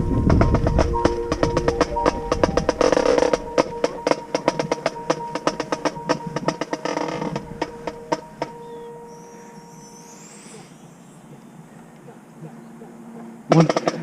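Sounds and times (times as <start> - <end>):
rapid drum strokes: 0.0 - 8.6
marching band playing: 0.0 - 8.9.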